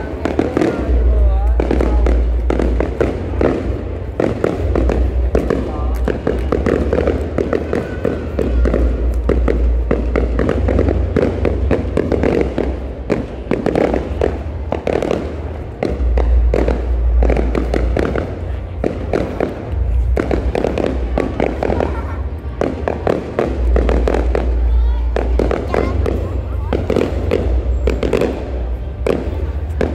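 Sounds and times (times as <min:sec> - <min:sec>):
fireworks bangs and crackles: 0:00.0 - 0:29.9.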